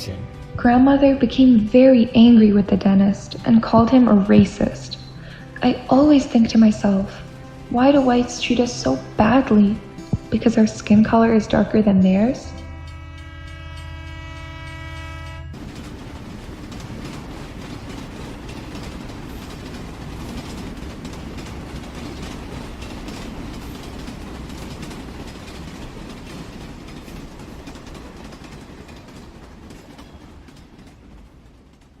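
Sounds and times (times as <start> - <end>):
train rumbling on rails: 0.0 - 32.0
train horn: 6.9 - 15.6
wheels clicking: 15.6 - 32.0.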